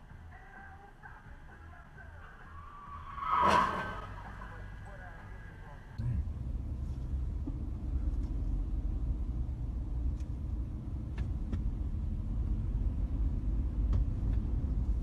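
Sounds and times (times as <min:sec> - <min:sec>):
car engine and road noise: 0:00.0 - 0:15.0
faint light ticks: 0:10.0 - 0:10.4.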